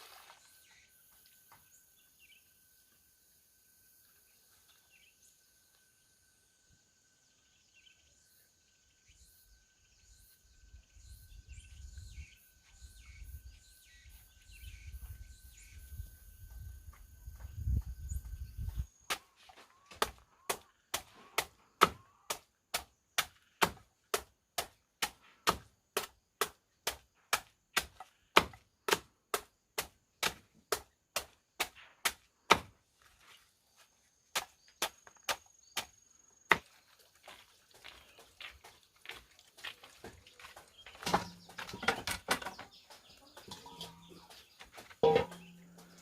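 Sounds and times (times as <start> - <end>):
blade chopping wood: 20.0 - 32.8, 41.0 - 42.7, 45.0 - 46.0.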